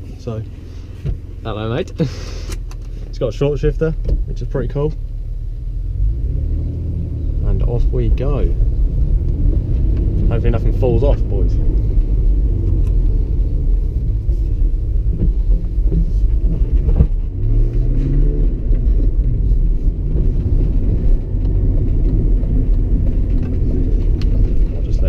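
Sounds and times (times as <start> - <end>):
car engine revving: 0.0 - 25.0
road rumble in car cabin: 0.0 - 25.0.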